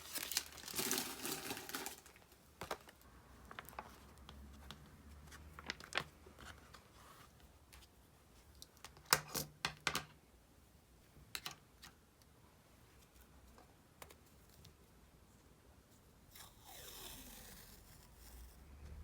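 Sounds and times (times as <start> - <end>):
diary pages rustling: 0.0 - 8.0.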